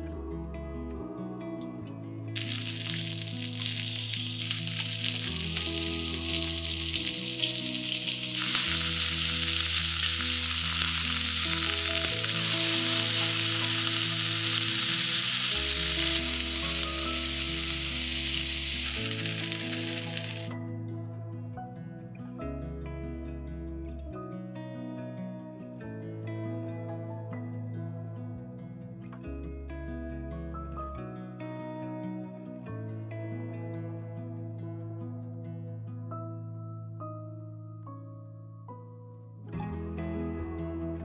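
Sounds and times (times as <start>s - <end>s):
soft background music: 0.0s - 41.0s
seafood sizzling in oil: 2.4s - 20.6s.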